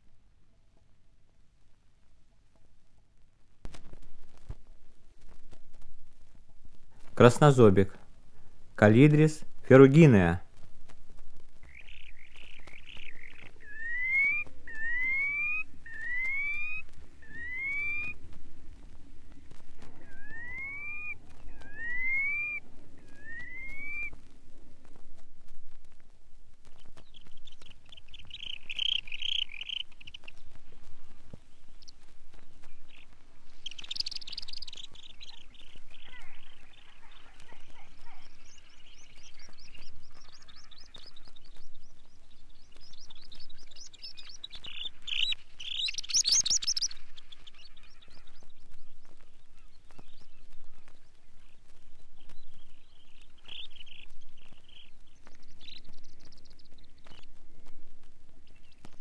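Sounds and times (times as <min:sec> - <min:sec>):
vinyl surface crackle: 0:03.6 - 0:08.2, 0:08.9 - 0:14.8, 0:15.6 - 0:59.0
bird trilling calls: 0:11.6 - 0:18.2, 0:19.8 - 0:24.2, 0:27.0 - 0:30.6, 0:32.6 - 0:51.6.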